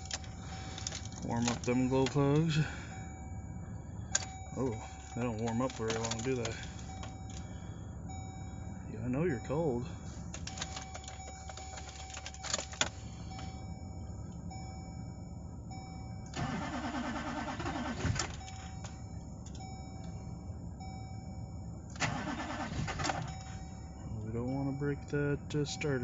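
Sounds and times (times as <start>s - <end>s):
starter cranking diesel engine: 0.0s - 26.0s.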